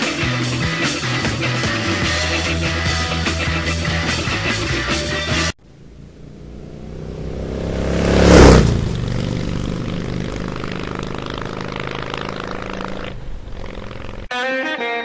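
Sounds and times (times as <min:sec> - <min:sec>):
motorcycle engine passing: 0:05.5 - 0:14.3.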